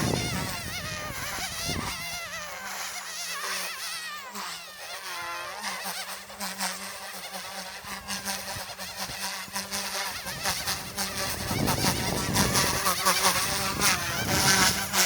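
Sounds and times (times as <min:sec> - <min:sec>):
high buzzing whine: 0:00.0 - 0:15.0
rc helicopter rotor hum: 0:00.0 - 0:15.0.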